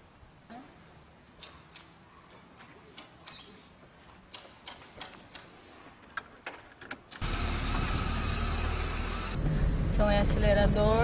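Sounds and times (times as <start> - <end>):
car engine running: 7.2 - 11.0.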